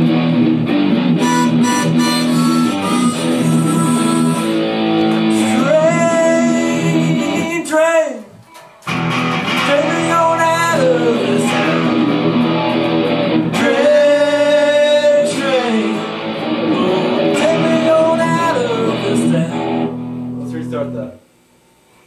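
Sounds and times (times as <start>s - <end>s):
guitar playing: 0.0s - 7.7s, 8.5s - 21.0s
person singing: 1.2s - 4.6s, 5.2s - 8.3s, 9.5s - 12.4s, 13.5s - 19.9s.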